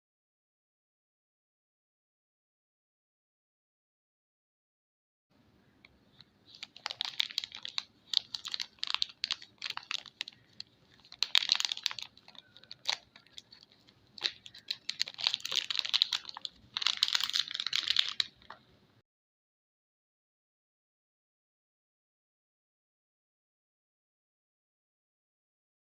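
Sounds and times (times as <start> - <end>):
packaging crinkling: 6.5 - 18.6.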